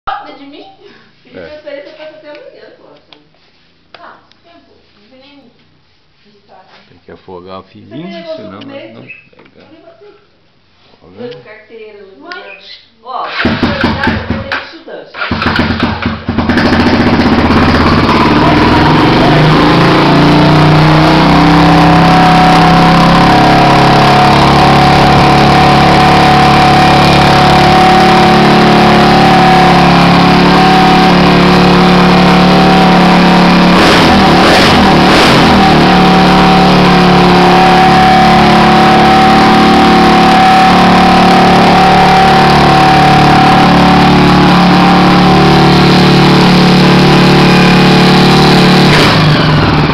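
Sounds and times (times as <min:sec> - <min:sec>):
motorcycle engine idling: 0:15.2 - 0:19.8.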